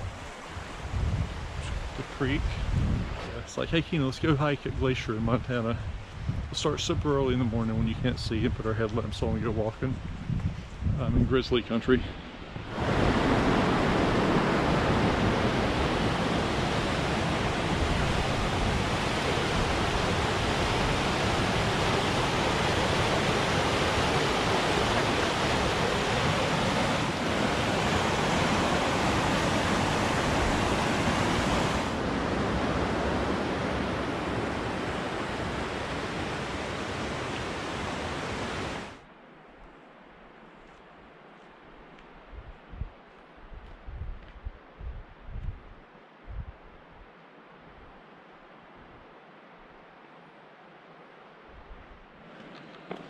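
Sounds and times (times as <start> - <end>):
fast water rushing: 11.6 - 39.0.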